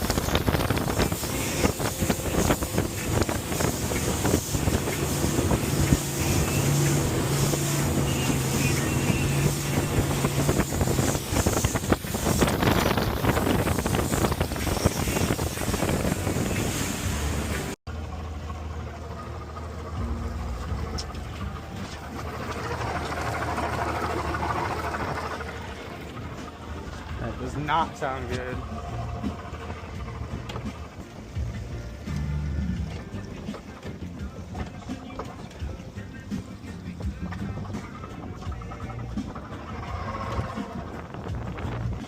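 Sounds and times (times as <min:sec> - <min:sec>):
wind buffeting microphone: 0:00.0 - 0:17.8, 0:37.0 - 0:42.0
engine running: 0:00.0 - 0:42.0
low steady hum: 0:17.6 - 0:40.8.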